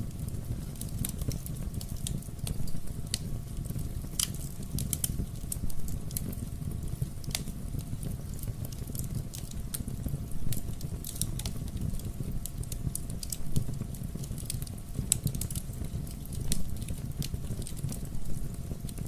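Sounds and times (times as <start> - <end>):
fire crackling in a fireplace: 0.0 - 19.0.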